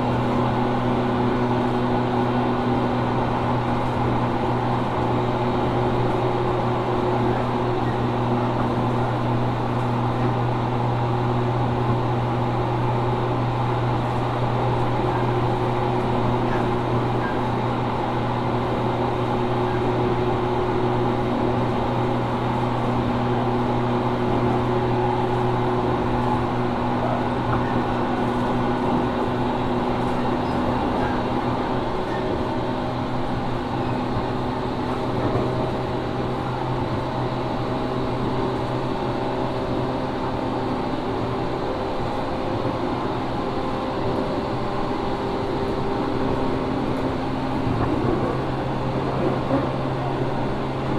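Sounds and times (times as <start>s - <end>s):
train wheels rumbling: 41.2s - 50.9s.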